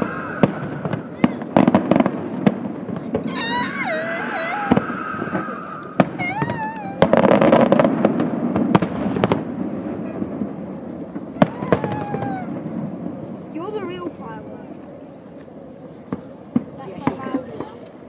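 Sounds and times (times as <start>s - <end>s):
firework bangs: 0.0s - 18.0s
firework crackling: 0.0s - 18.0s.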